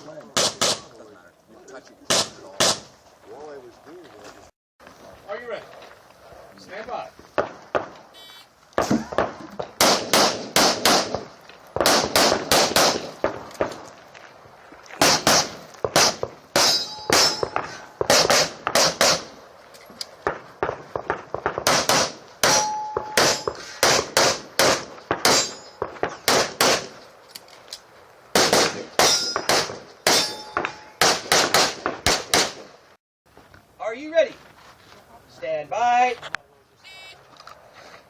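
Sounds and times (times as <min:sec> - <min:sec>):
rapid pistol shots: 0:00.4 - 0:00.9, 0:08.8 - 0:13.7, 0:15.0 - 0:19.4, 0:20.2 - 0:27.0, 0:28.3 - 0:30.4, 0:31.0 - 0:32.7
steel targets ringing: 0:16.6 - 0:17.8, 0:22.4 - 0:23.6, 0:25.3 - 0:25.8, 0:29.0 - 0:31.0.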